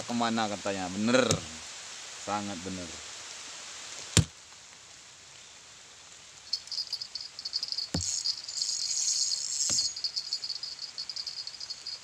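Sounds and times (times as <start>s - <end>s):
faint steady hiss: 0.0s - 12.0s
insect chirping trill: 6.4s - 12.0s.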